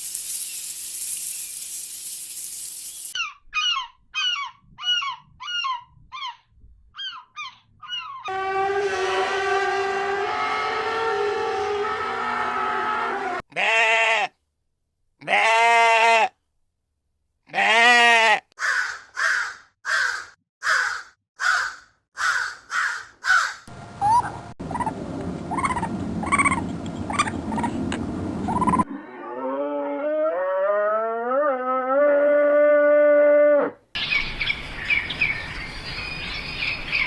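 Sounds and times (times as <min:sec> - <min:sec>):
farm animal bleating: 0:13.2 - 0:14.4, 0:15.2 - 0:16.4, 0:17.5 - 0:18.5
steady background hum: 0:23.7 - 0:28.9.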